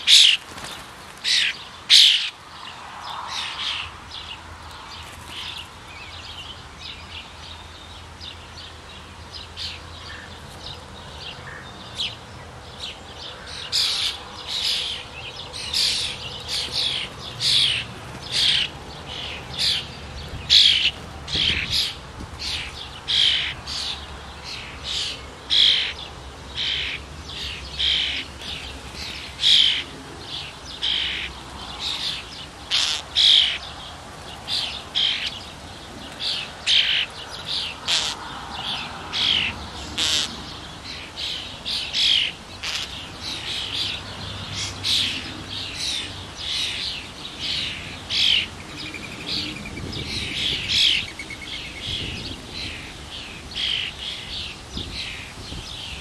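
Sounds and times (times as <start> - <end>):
bird giving harsh high calls: 32.7 - 33.6, 37.8 - 38.2, 39.3 - 40.4, 42.0 - 43.0.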